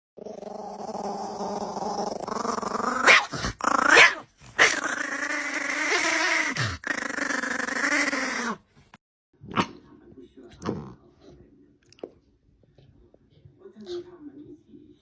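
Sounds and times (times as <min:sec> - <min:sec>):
dog growling and vocalising: 0:00.2 - 0:08.8.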